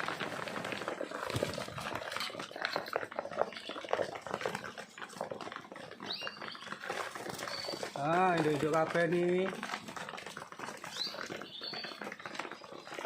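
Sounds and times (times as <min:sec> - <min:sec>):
pigeon wing flutters: 0:00.0 - 0:02.3
pigeons scraping and tapping: 0:00.0 - 0:13.0.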